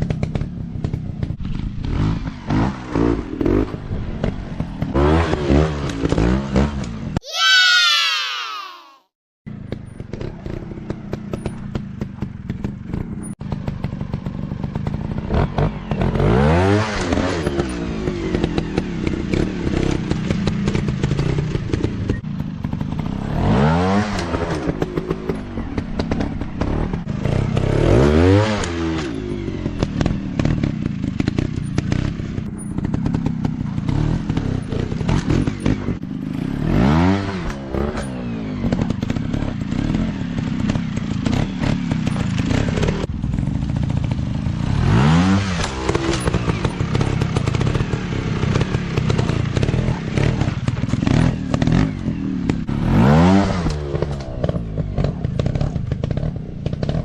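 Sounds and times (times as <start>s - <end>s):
dirt bike engines revving: 9.7s - 57.0s.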